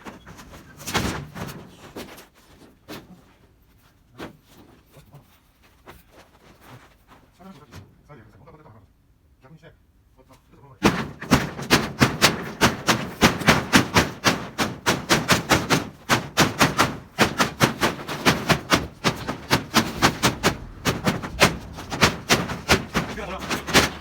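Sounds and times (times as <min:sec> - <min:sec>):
rapid hammering: 0:10.8 - 0:24.0.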